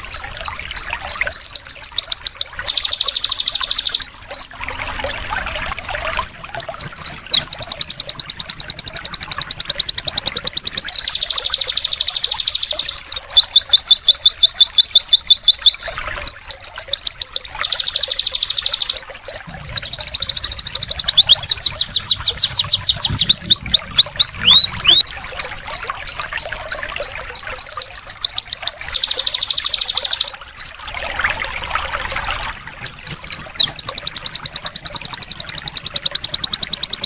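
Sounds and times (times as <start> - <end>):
bird singing trills and chirps: 0.0 - 37.0
trickle of running water: 0.0 - 37.0.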